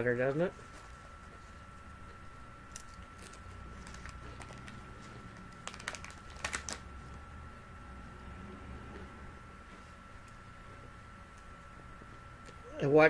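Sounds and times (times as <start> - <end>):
potato chips crunching: 2.7 - 6.8.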